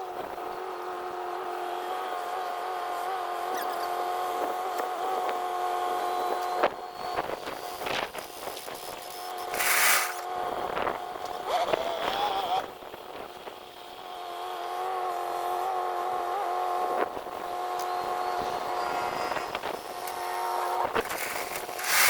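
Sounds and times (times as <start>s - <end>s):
motor humming: 17.4s - 22.0s.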